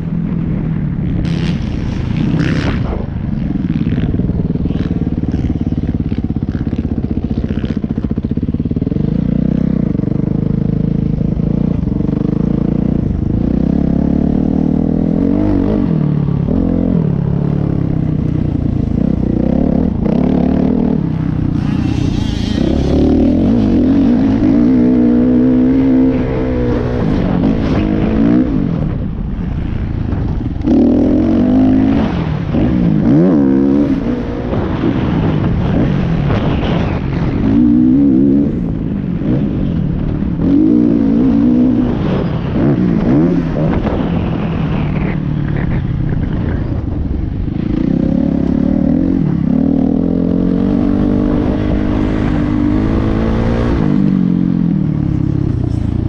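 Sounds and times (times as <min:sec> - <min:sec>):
motocross bike engine revving: 0:01.2 - 0:29.1.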